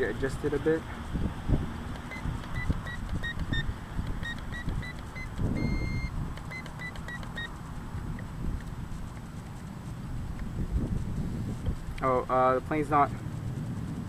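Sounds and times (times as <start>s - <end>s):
wind rumble on microphone: 0.0s - 6.6s, 7.6s - 14.0s
transmitter beeping: 1.9s - 7.6s.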